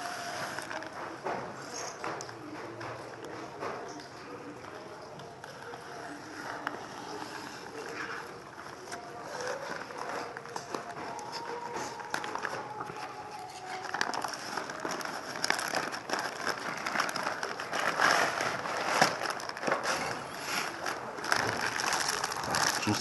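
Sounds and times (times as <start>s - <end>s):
packaging crinkling: 5.4s - 23.0s.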